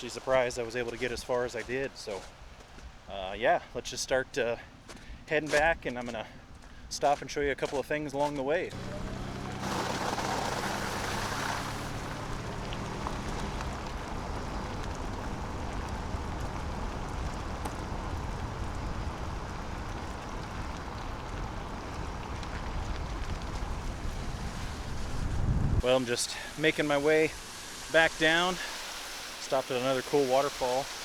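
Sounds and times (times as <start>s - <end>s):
road and tyre noise: 8.6s - 31.0s
truck engine hum: 8.7s - 28.6s.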